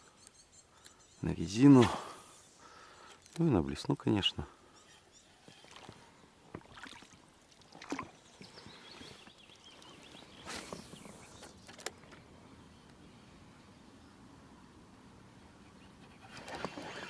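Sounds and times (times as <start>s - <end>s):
faint chirping: 0.0s - 1.5s.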